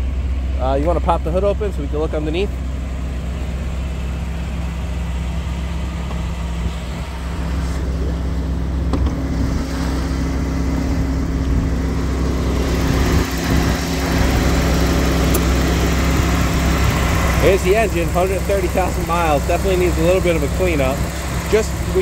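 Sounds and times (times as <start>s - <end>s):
car engine idling: 0.0s - 22.0s
radiator fan running: 0.0s - 22.0s.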